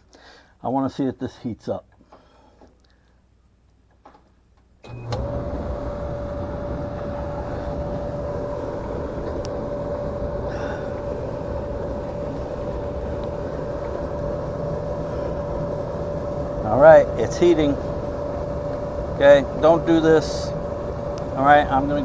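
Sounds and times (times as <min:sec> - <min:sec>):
clothes dryer running: 0:04.8 - 0:22.0.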